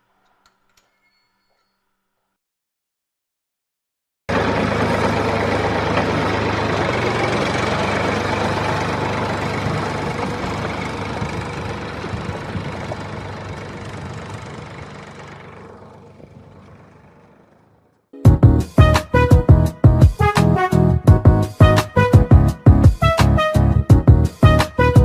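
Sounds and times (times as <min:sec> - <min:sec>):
motor humming: 0:04.3 - 0:18.0.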